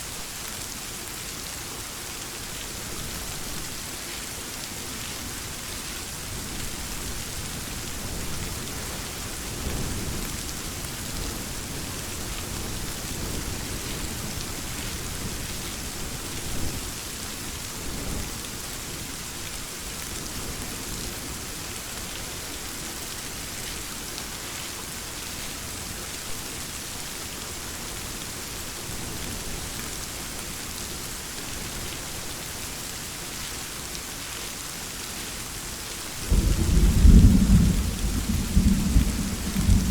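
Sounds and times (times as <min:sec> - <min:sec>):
heavy rain: 0:00.0 - 0:39.9
low thunder rumbles: 0:36.3 - 0:39.9.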